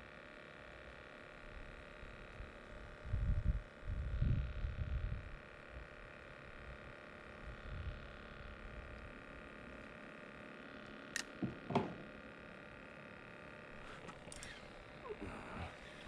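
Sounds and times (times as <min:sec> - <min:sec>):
short knocks: 0:11.4 - 0:12.1.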